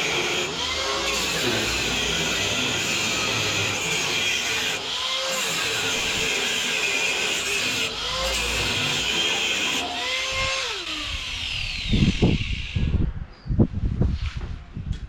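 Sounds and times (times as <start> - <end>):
angle grinder cutting steel: 0.0 - 12.9.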